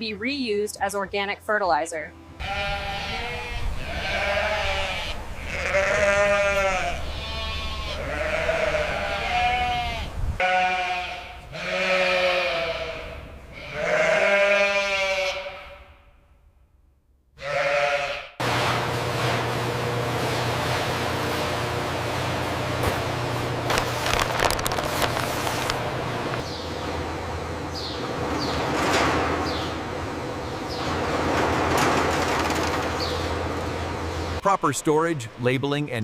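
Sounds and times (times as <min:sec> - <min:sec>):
goats bleating: 0:02.4 - 0:15.8, 0:17.4 - 0:18.3.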